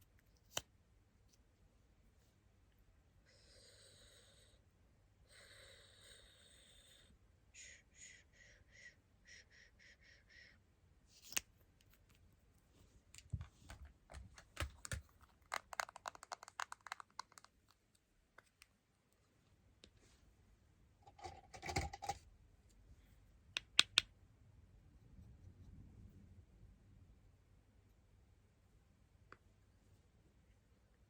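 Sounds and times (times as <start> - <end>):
craft tools tapping and scratching: 21.1 - 22.2.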